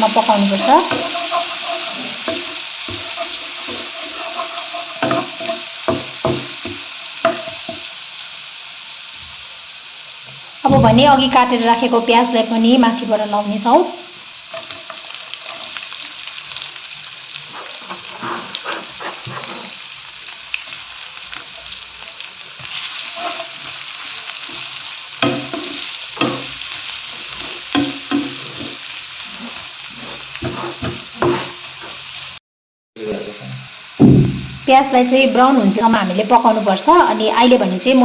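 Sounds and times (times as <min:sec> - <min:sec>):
onions sizzling in a frying pan: 0:00.0 - 0:32.4, 0:33.0 - 0:38.0
utensil scraping and knocking pan: 0:00.1 - 0:07.8, 0:17.5 - 0:19.8, 0:23.1 - 0:23.8, 0:24.5 - 0:32.1.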